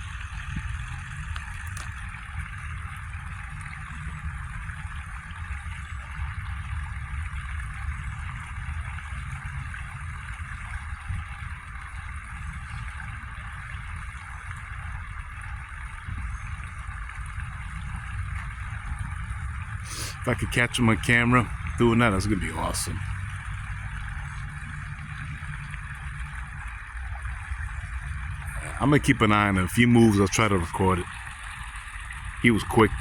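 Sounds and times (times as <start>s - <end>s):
wind buffeting microphone: 0.0s - 33.0s
outdoor hiss: 19.8s - 23.4s.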